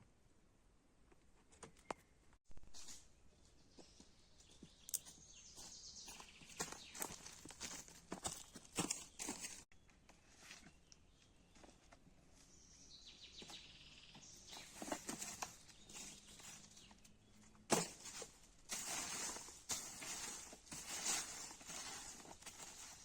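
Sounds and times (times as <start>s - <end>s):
rustling or scraping: 2.6s - 3.2s, 14.4s - 23.0s.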